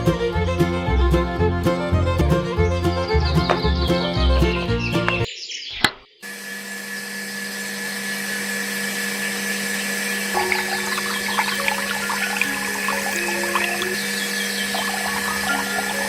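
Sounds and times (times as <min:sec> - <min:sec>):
water pump humming: 0:06.3 - 0:16.0
water pump clicking on: 0:09.2 - 0:16.0
water splashing and trickling: 0:10.1 - 0:16.0.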